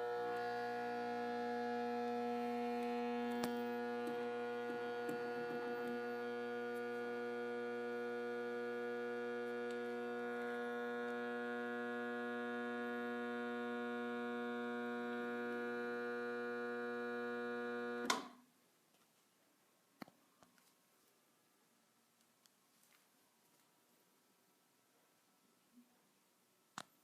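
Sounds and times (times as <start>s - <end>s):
click: 2.8s - 4.2s, 18.0s - 18.3s.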